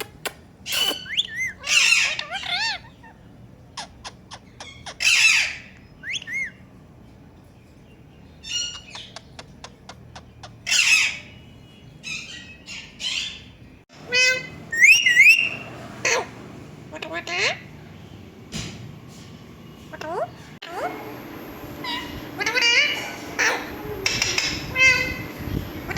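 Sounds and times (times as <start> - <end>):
parrot squawking: 0.0 - 6.6, 8.4 - 11.4, 14.1 - 16.3, 21.8 - 25.3.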